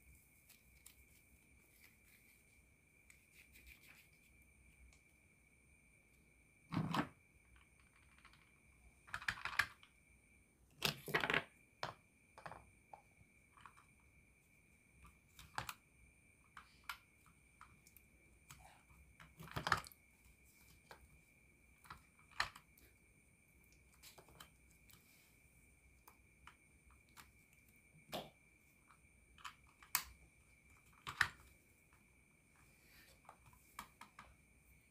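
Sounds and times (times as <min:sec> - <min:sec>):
plastic toy clicks and knocks: 0:09.1 - 0:09.9, 0:19.2 - 0:20.0.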